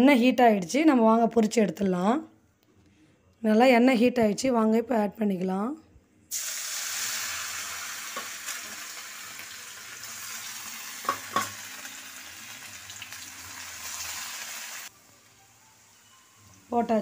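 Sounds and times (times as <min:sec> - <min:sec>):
deep-frying sizzle: 0:06.3 - 0:16.7.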